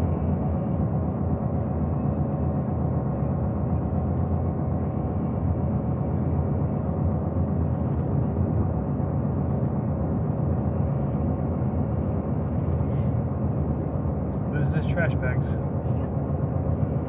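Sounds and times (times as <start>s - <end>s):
truck engine and tyres droning: 0.0s - 17.0s.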